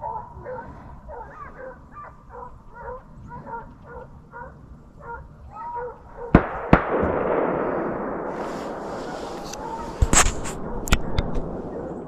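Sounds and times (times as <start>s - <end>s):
hounds baying: 0.0s - 6.5s, 9.0s - 10.0s
gunshots: 6.3s - 11.8s.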